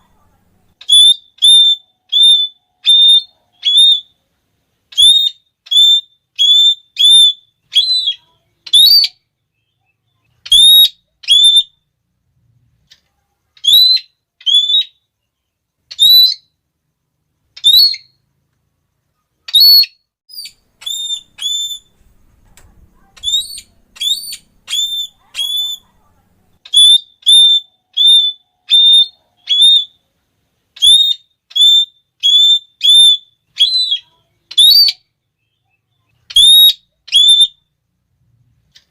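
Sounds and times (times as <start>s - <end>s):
parrot giving shrill calls: 0.8s - 4.1s, 4.9s - 9.2s, 10.4s - 11.8s, 13.6s - 15.0s, 15.9s - 16.5s, 17.6s - 18.2s, 19.5s - 22.0s, 23.1s - 26.0s, 26.6s - 30.0s, 30.8s - 35.1s, 36.3s - 37.6s.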